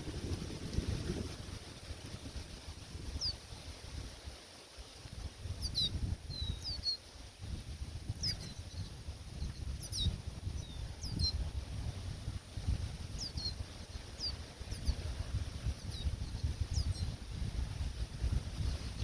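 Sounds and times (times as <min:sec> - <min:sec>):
wind rumble on microphone: 0:00.0 - 0:19.0
small birds chirping: 0:03.1 - 0:03.5, 0:04.9 - 0:07.1, 0:08.0 - 0:11.5, 0:13.0 - 0:17.2.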